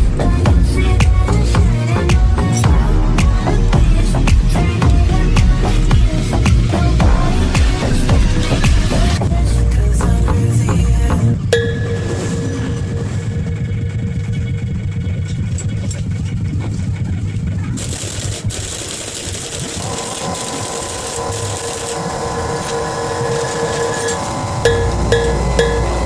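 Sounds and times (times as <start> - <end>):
background music: 0.0 - 15.1, 23.1 - 26.0
small engine running: 13.8 - 26.0.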